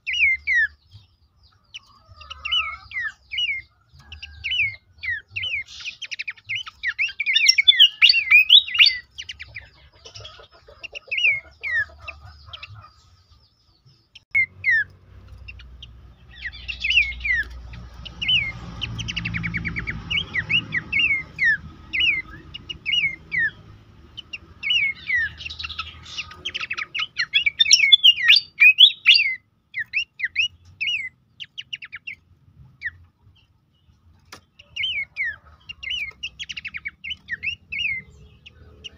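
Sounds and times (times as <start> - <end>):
bird whistling calls: 4.5 - 9.6, 19.1 - 23.6, 24.6 - 32.2.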